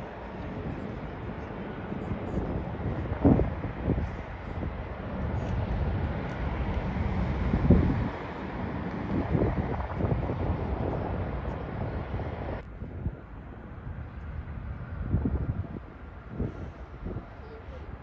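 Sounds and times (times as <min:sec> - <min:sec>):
jet engines rushing: 0:00.0 - 0:18.0
wind buffeting microphone: 0:00.0 - 0:18.0.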